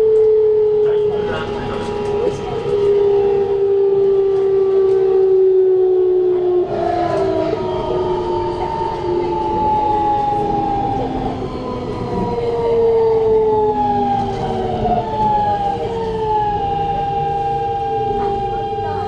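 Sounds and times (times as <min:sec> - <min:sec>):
train running rumble: 0:00.0 - 0:05.5, 0:06.4 - 0:19.0
train motors whining falling pitch: 0:00.0 - 0:19.0.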